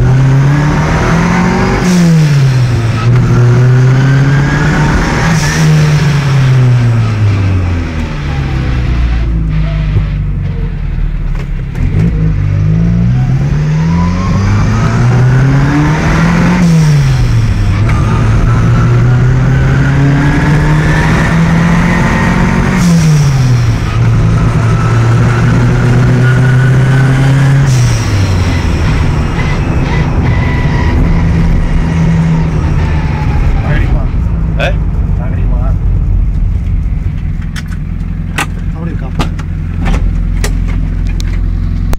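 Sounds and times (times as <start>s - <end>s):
car engine accelerating: 0.0s - 41.9s.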